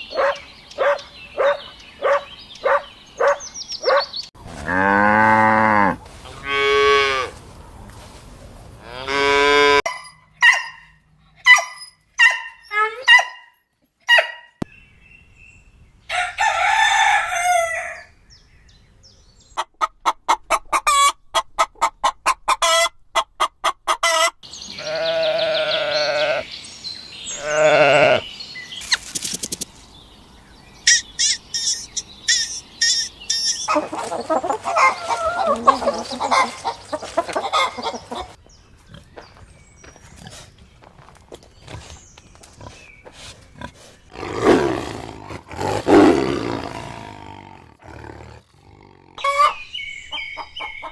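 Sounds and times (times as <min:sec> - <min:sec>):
rooster crowing: 0:16.1 - 0:18.1
chickens clucking: 0:19.5 - 0:24.4, 0:30.9 - 0:38.4, 0:49.2 - 0:50.9.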